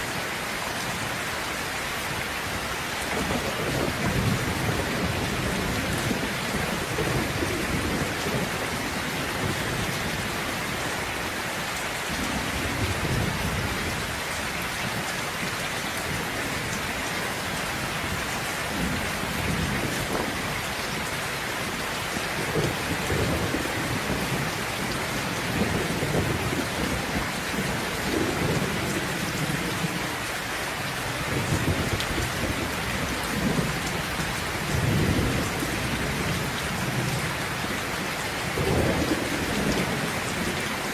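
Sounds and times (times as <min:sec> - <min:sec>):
heavy rain falling: 0:00.0 - 0:40.9
low thunder rumbling: 0:03.1 - 0:11.0, 0:16.0 - 0:30.1, 0:30.9 - 0:40.9.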